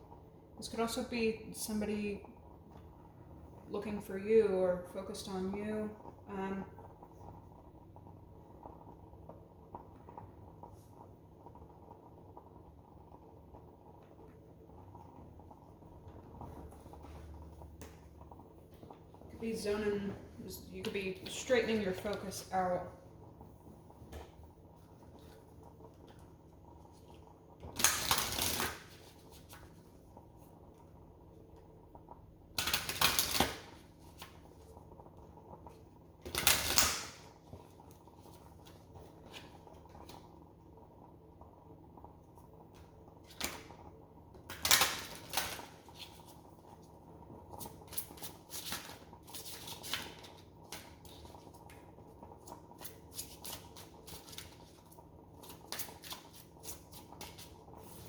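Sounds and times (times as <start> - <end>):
cards shuffling and rustling: 27.8 - 29.8, 48.0 - 51.4.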